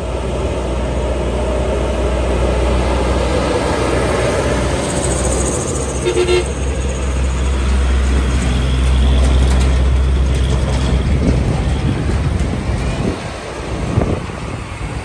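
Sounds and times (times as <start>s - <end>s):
diesel engine droning: 0.0s - 15.0s
two-tone horn toot: 6.0s - 6.6s.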